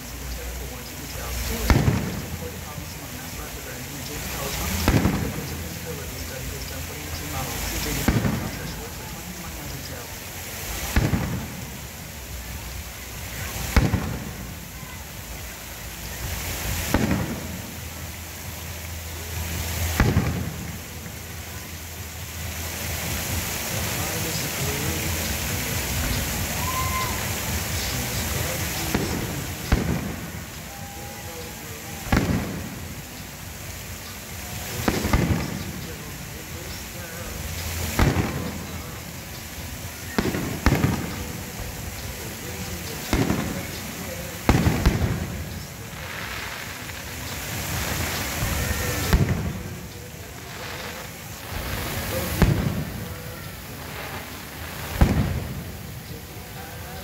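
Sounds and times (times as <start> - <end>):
fireworks booming: 0.0 - 57.0
low rumble and hiss: 0.0 - 57.0.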